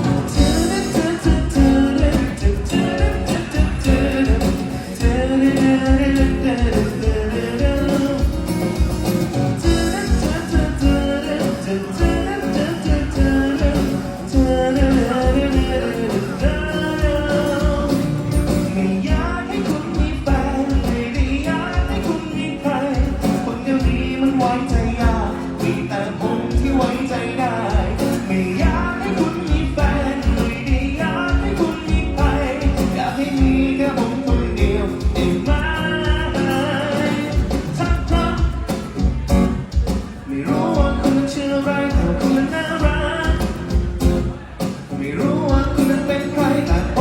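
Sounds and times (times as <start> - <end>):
strong bass beat: 0.0 - 11.4
folk song singing: 0.0 - 47.0.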